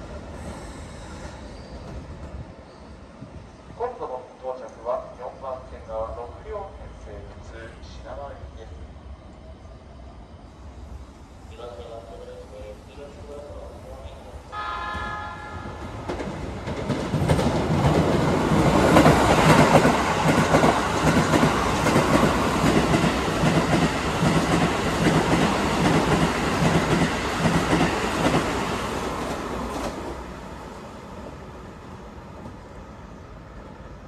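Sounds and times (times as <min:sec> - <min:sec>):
low train hum: 0:00.0 - 0:34.0
train wheels clacking: 0:14.8 - 0:28.6.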